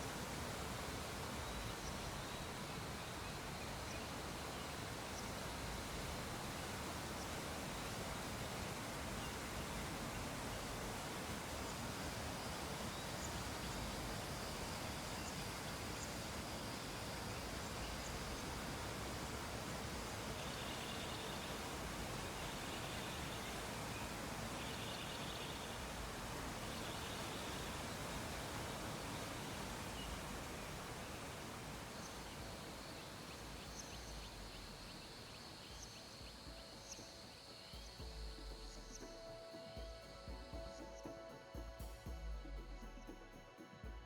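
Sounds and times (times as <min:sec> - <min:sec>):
faint background hiss: 0:00.0 - 0:44.0.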